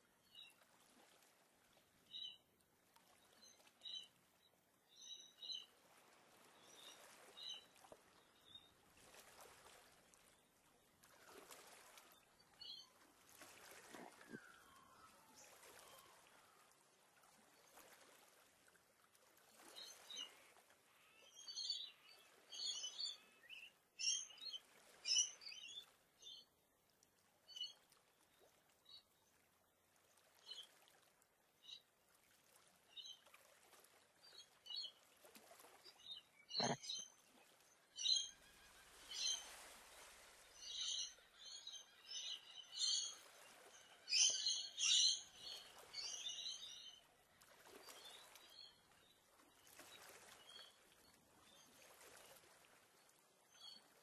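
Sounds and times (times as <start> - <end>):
wild birds chirping and twittering: 35.8 - 47.1.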